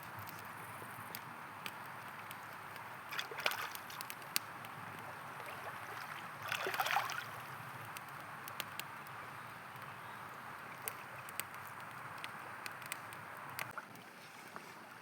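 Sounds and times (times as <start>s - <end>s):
campfire crackling: 0.0s - 15.0s
gurgling water splashes: 3.0s - 8.0s.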